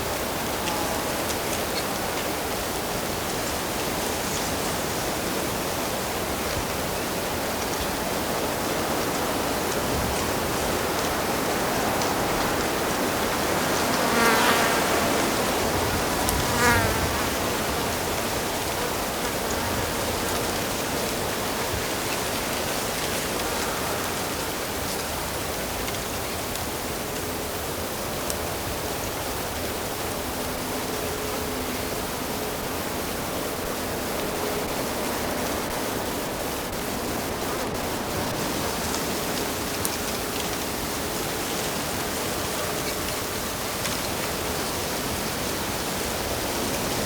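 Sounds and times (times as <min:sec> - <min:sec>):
insect buzzing past: 0:13.3 - 0:18.0
stream rushing: 0:28.6 - 0:42.4.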